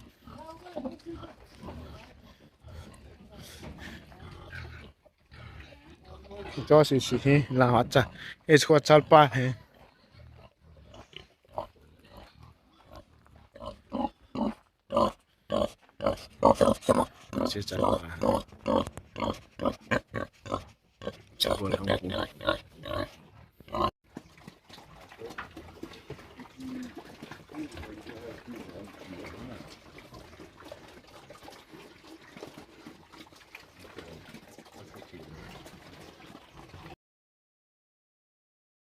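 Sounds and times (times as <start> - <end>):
water trickling and splashing: 0.0 - 10.3, 24.0 - 37.0
pigs grunting: 0.0 - 37.0.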